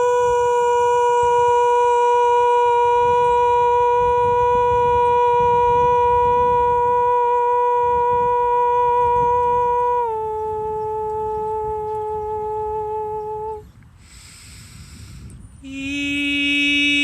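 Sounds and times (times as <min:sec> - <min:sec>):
person toning long held notes: 0:00.0 - 0:17.0
breath: 0:14.0 - 0:15.4.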